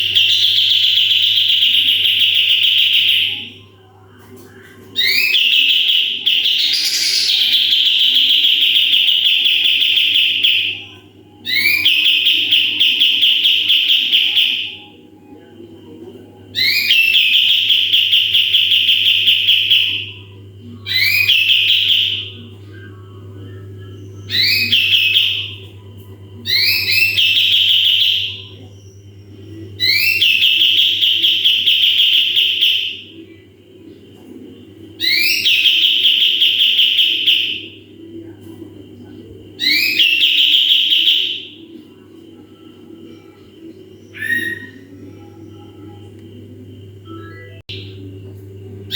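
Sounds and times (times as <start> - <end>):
bulbul singing trills: 5.0 - 14.9, 23.8 - 33.4
steady low hum: 6.2 - 12.8, 18.2 - 35.8, 41.5 - 48.9.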